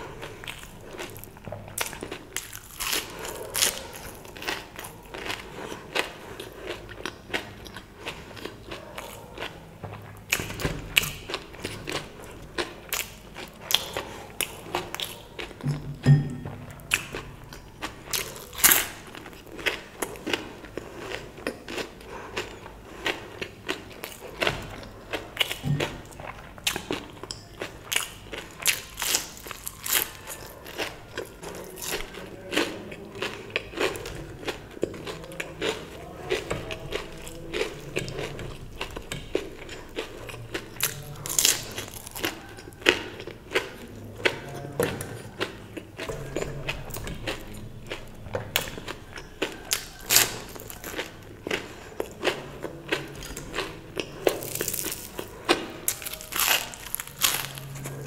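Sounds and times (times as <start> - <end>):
mouth clicks and crunches: 0.0 - 15.9, 16.7 - 58.0
person chewing food: 0.0 - 58.0.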